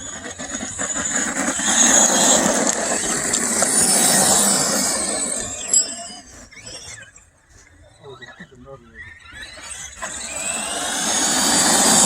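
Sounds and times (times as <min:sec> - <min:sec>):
rc truck motor whining: 0:00.0 - 0:12.0
tyre noise on dirt: 0:01.0 - 0:06.6.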